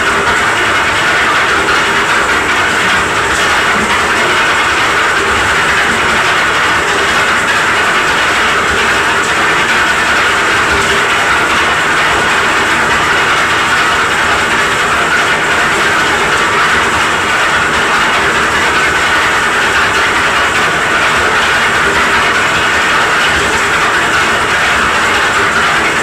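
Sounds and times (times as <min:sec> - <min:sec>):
concrete mixer running: 0:00.0 - 0:26.0.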